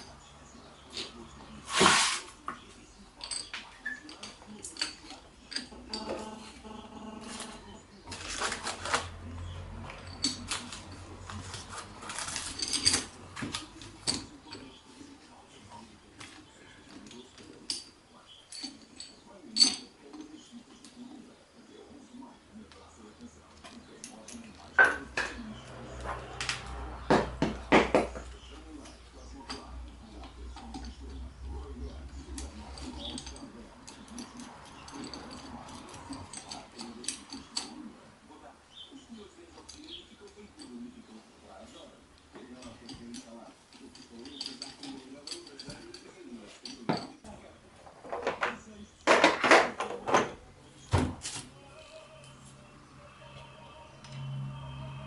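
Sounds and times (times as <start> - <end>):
metal parts clicking and clinking: 3.0 - 14.8, 15.7 - 21.1, 23.6 - 37.9, 41.7 - 50.4.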